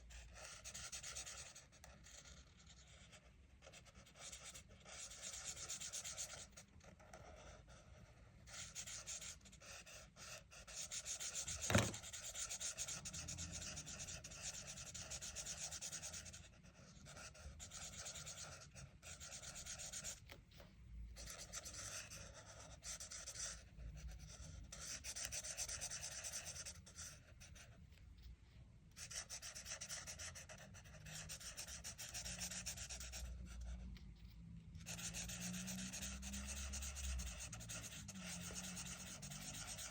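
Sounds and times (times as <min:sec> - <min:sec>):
colouring strokes on paper: 0:29.0 - 0:39.9.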